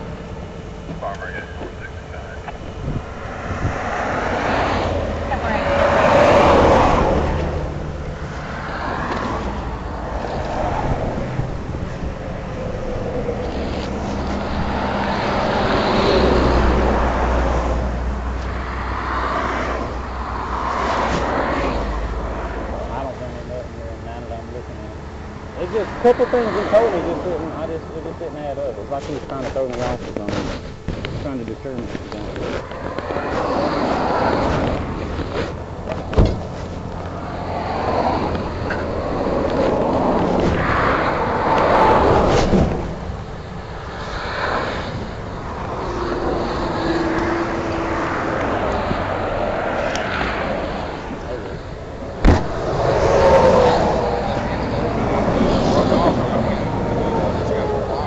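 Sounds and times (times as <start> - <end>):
highway traffic rushing: 0.0 - 58.0
vehicle passing close: 1.0 - 30.4, 31.3 - 58.0
sharp thump: 34.4 - 36.8, 42.2 - 43.0, 52.2 - 53.0.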